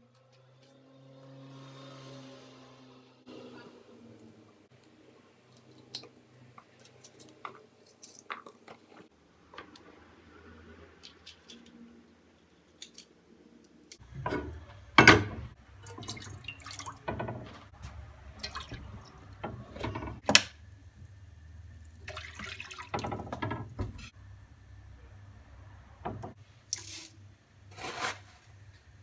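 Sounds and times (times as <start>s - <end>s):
tap water running into sink: 14.0s - 24.1s, 26.0s - 26.8s.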